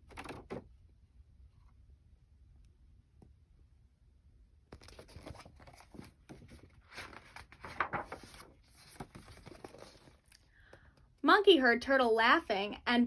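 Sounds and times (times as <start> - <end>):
paper page rustling: 4.7 - 10.3.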